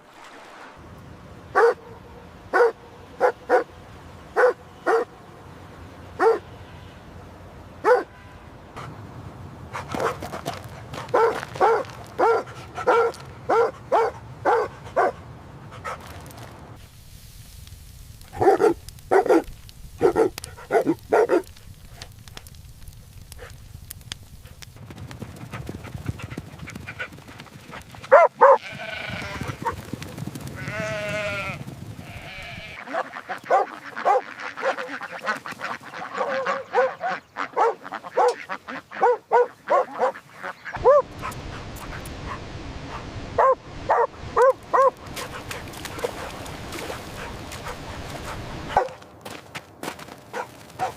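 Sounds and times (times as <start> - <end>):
puppy barking: 1.6 - 3.7, 4.4 - 5.1, 6.2 - 6.4, 7.8 - 8.2, 9.8 - 10.2, 11.0 - 15.2, 18.4 - 21.5, 28.1 - 28.7, 32.8 - 35.0, 36.1 - 41.4, 42.2 - 49.0, 50.3 - 50.9
puppies yapping: 32.8 - 41.4, 43.4 - 49.0.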